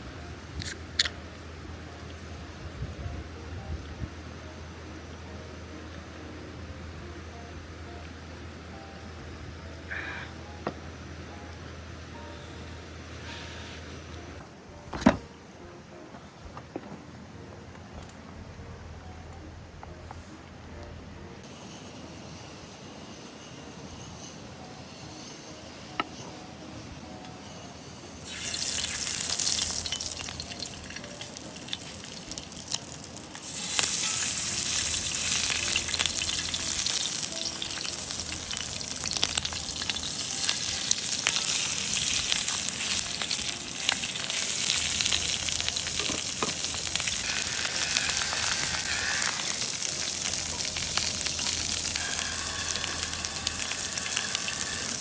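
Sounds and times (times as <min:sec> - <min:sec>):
food sizzling in a pan: 0:04.2 - 0:14.2, 0:21.4 - 0:55.0.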